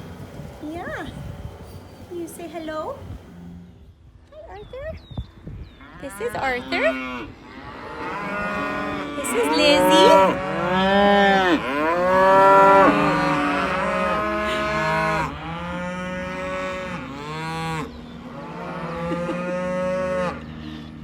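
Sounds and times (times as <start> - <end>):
cattle mooing: 5.8 - 20.8.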